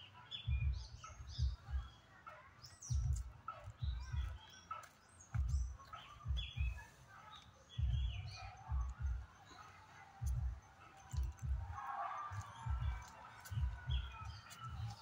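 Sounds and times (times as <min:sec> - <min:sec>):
birds chirping: 0:00.0 - 0:15.0
dull low thumps: 0:00.5 - 0:01.9, 0:02.9 - 0:04.4, 0:05.3 - 0:06.9, 0:07.8 - 0:09.4, 0:10.2 - 0:15.0.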